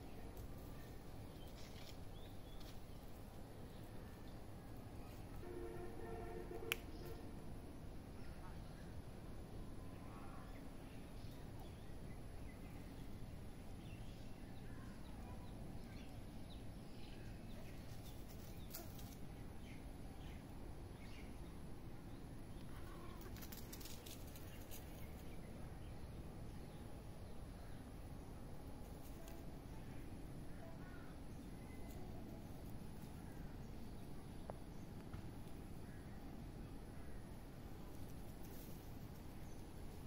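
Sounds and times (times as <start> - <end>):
low background noise: 0.0 - 40.0.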